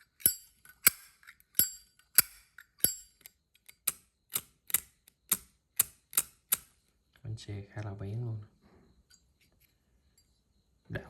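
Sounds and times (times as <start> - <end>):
lighter lid clicking open and shut: 0.0 - 3.0, 3.6 - 6.7.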